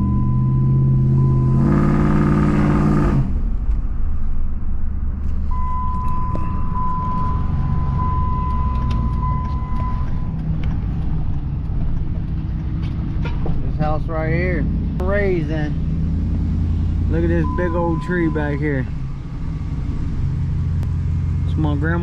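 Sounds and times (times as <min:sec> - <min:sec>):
strong pitched hum: 0:00.0 - 0:11.9
car engine and road rumble: 0:00.0 - 0:22.0.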